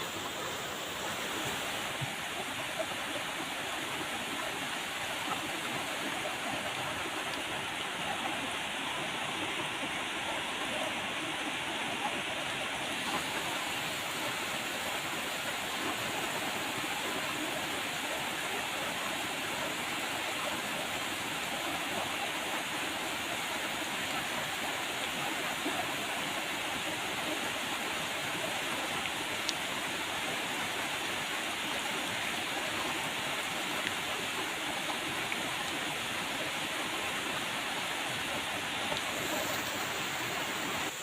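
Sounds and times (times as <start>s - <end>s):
steady rain falling: 29.0s - 41.0s.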